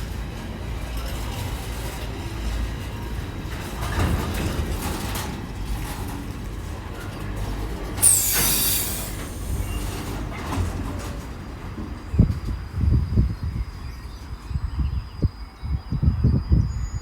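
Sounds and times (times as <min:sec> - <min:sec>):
train wheels rumbling on rails: 0:00.0 - 0:15.4
high squeal falling in pitch: 0:08.0 - 0:10.0
loud hiss: 0:08.0 - 0:10.4.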